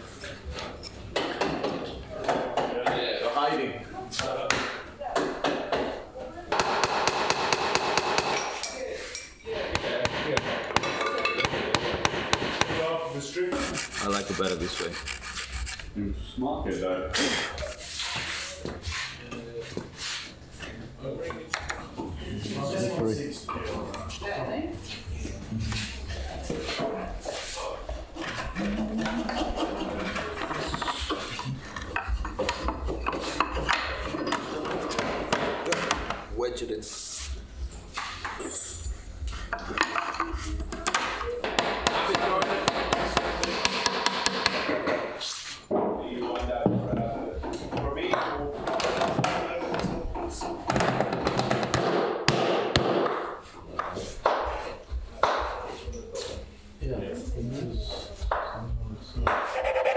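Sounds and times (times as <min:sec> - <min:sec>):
hammer tapping wood: 0:06.6 - 0:08.4, 0:09.8 - 0:12.8, 0:40.9 - 0:44.7
hand tool rasping on wood: 0:13.5 - 0:15.8.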